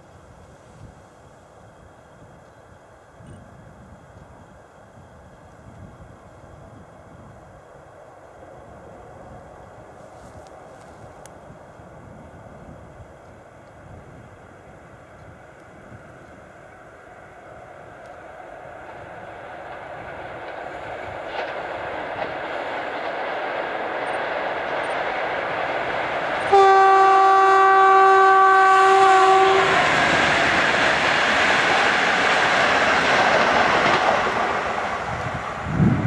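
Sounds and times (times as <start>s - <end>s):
electric locomotive passing: 0.0s - 36.0s
train horn blast: 26.4s - 30.0s.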